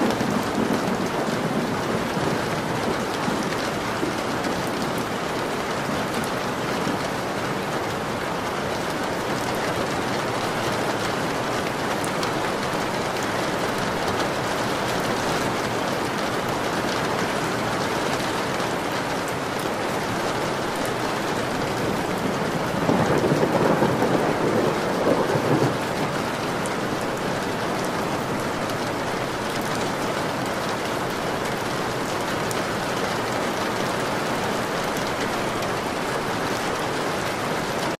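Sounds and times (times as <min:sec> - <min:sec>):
thunder rolling: 0:00.0 - 0:05.1, 0:20.9 - 0:29.6
rain falling: 0:00.0 - 0:38.0.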